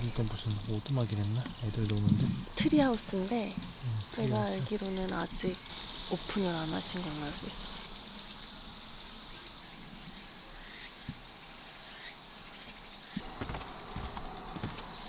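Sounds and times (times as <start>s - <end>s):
insects chirring: 0.0s - 15.0s
soft low thumps: 13.2s - 15.0s.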